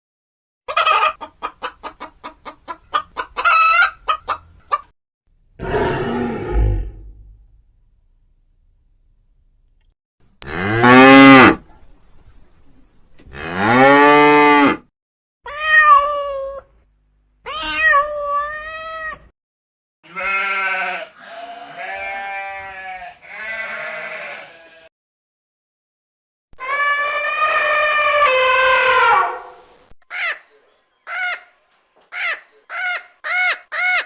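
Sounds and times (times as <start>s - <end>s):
cow mooing: 10.4s - 11.6s, 13.3s - 14.8s, 20.1s - 24.7s
cat meowing: 15.5s - 16.7s, 17.5s - 19.3s
sheep bleating: 20.0s - 24.9s.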